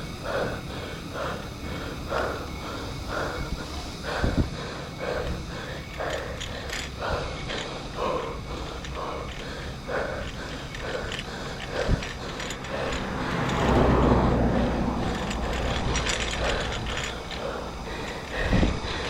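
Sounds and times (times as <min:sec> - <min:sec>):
bicycle freewheel ratchet clicking: 0:00.0 - 0:19.0
wind rumble on microphone: 0:02.0 - 0:05.4, 0:11.1 - 0:19.0.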